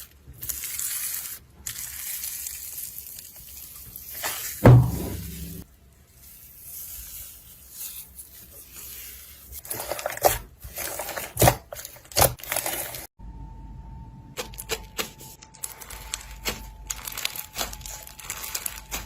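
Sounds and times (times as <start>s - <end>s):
slime squishing: 0.0s - 13.1s, 14.4s - 19.0s
heavy thump: 4.6s - 5.6s
steady hum: 4.6s - 5.6s, 13.2s - 15.6s.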